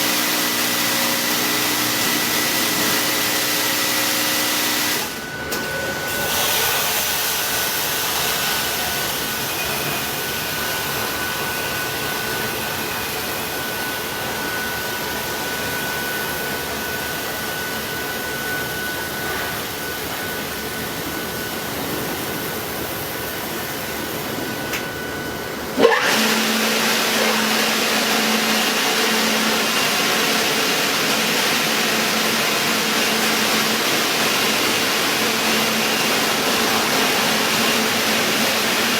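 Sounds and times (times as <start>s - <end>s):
car wash machinery rushing: 0.0s - 38.9s.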